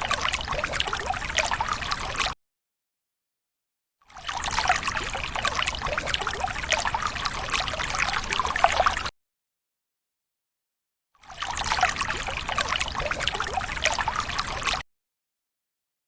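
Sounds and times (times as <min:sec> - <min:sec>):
water pouring and splashing: 0:00.0 - 0:02.4, 0:04.1 - 0:09.1, 0:11.2 - 0:14.8.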